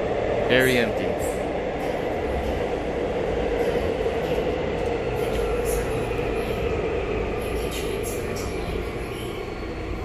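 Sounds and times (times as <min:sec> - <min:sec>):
subway train running: 0:00.0 - 0:10.0.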